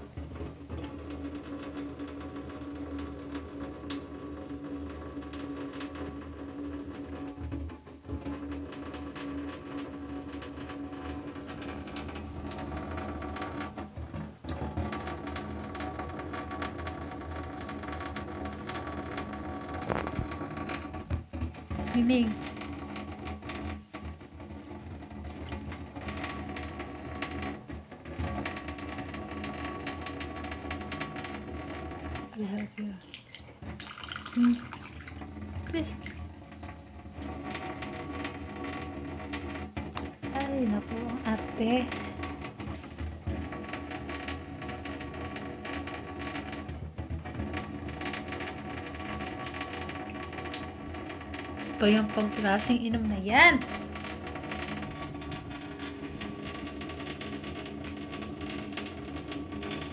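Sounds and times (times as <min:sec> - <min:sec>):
small clicks and splashes: 0:00.0 - 0:59.9
tap water running: 0:00.0 - 0:59.9
cat lapping water: 0:32.1 - 0:46.7.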